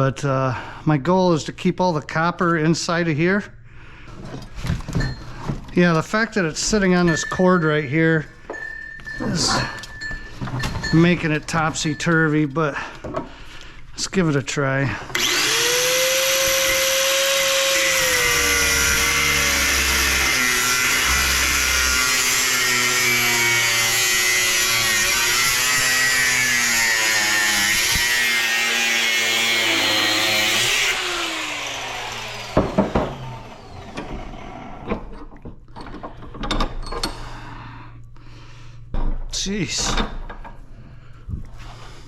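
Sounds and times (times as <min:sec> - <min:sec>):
knocks and rattles of parts: 0:04.1 - 0:13.4, 0:27.6 - 0:34.3, 0:34.9 - 0:37.4, 0:38.8 - 0:41.4
power tool motor running: 0:15.1 - 0:34.7.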